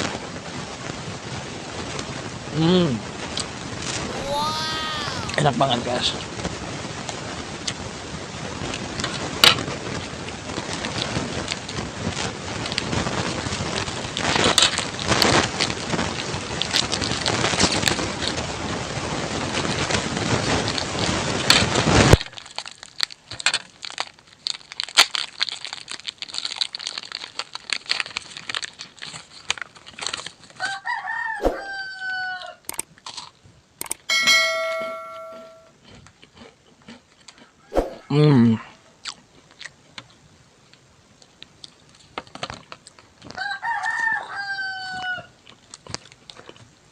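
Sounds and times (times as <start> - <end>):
rooster crowing: 30.6 - 32.6, 43.4 - 45.3
small clicks: 33.8 - 34.1.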